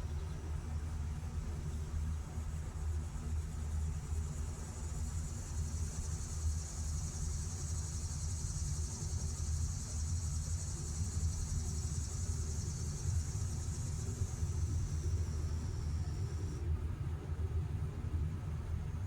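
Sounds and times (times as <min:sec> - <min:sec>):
crickets chirring: 0:04.1 - 0:16.6.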